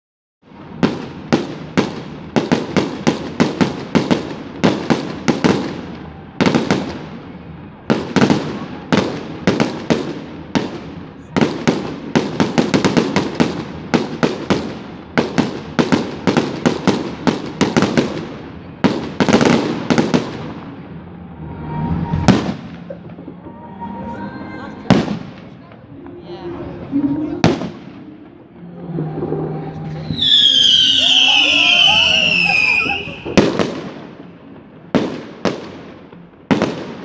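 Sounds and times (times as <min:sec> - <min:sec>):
fireworks bangs with echo: 0:00.5 - 0:24.1, 0:24.8 - 0:26.2, 0:27.4 - 0:37.0.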